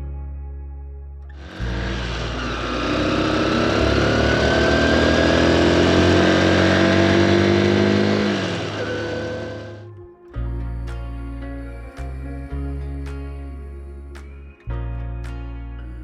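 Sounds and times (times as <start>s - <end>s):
motorcycle engine accelerating: 1.4s - 9.8s.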